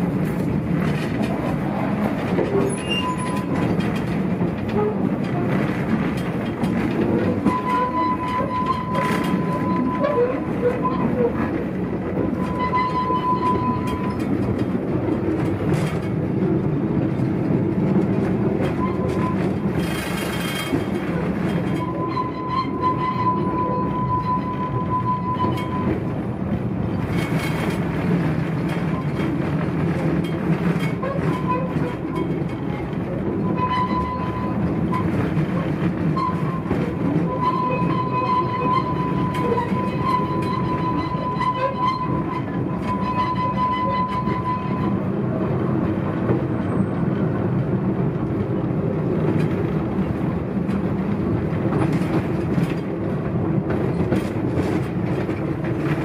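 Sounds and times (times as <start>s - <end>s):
train wheels rumbling on track: 0.0s - 56.0s
high wheel squeal: 2.6s - 3.7s, 7.4s - 11.5s, 12.2s - 14.2s, 21.7s - 26.0s, 33.4s - 45.0s.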